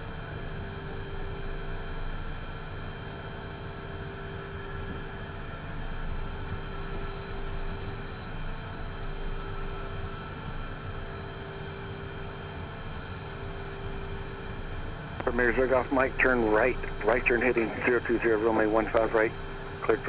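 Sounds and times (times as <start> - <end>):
jet engines idling: 14.4 - 20.0.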